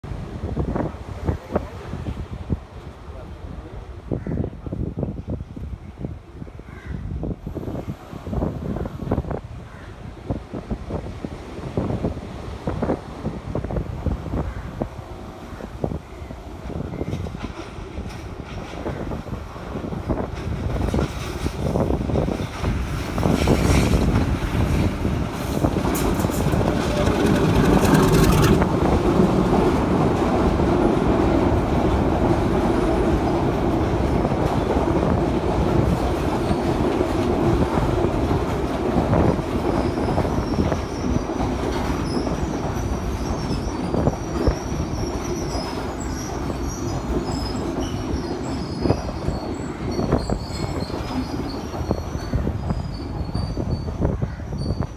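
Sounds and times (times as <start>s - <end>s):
train wheels rumbling on rails: 10.2s - 54.9s
high-pitched wheel squeal: 26.1s - 28.7s.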